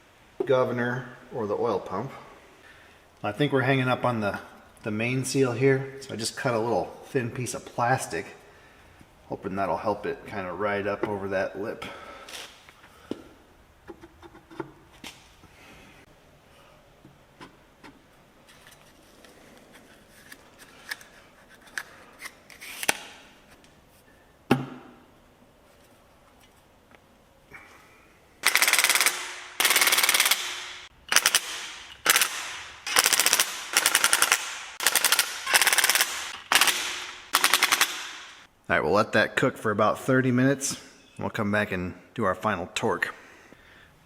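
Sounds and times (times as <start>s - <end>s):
power driver rattling bursts: 28.4s - 38.5s.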